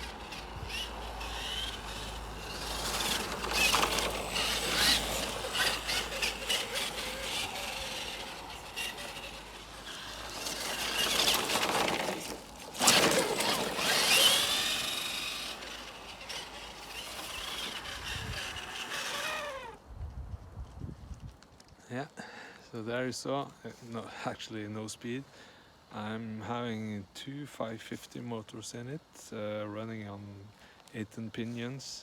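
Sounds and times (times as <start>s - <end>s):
electric motors whining: 0.0s - 19.8s
gritty scraping: 0.0s - 19.8s.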